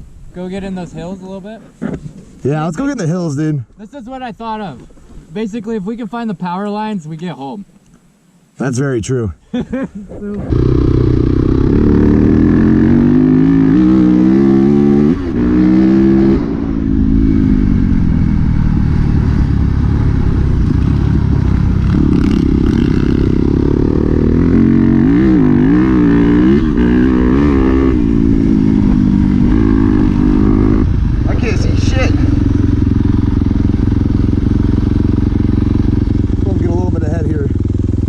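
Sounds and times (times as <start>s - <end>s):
dirt bike engine revving: 10.4s - 38.0s.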